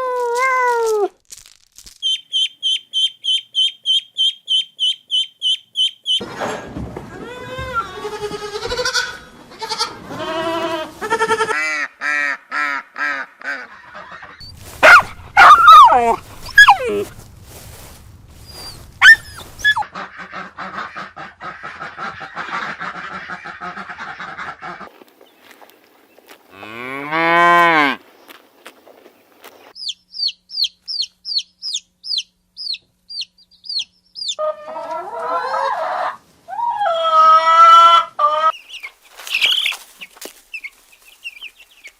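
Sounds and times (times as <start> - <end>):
high falling bird chirps: 2.0 - 6.2, 29.8 - 34.4, 38.5 - 41.9
cow mooing: 26.5 - 28.0.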